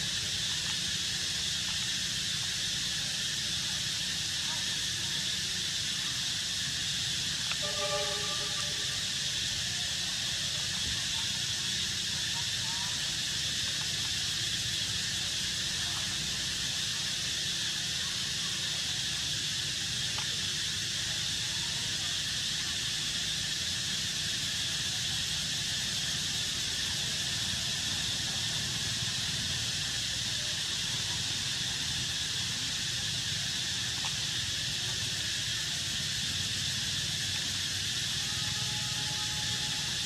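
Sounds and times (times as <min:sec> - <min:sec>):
outdoor background hiss: 0:00.0 - 0:40.0
faint ticks: 0:07.4 - 0:08.2, 0:20.1 - 0:20.3.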